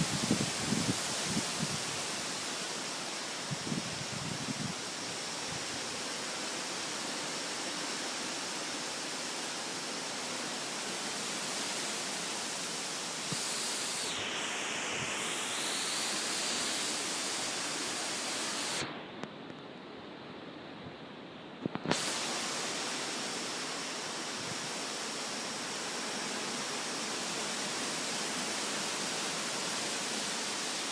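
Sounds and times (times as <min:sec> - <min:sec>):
storm winds rushing: 0:00.0 - 0:02.2.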